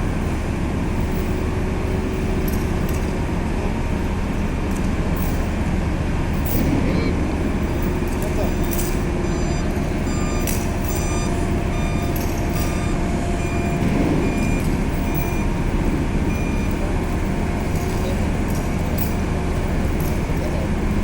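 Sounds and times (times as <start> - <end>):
heavy vehicle engine running: 0.0 - 21.0
electronic warning beeps: 6.6 - 20.9.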